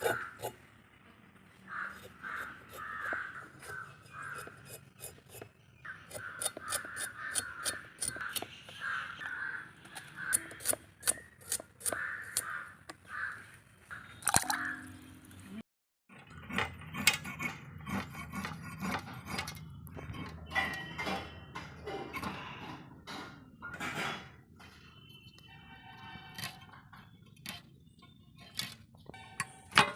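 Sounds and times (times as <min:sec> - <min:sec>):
crows cawing: 0:00.0 - 0:00.6, 0:01.7 - 0:04.8, 0:05.9 - 0:11.2, 0:11.8 - 0:14.9.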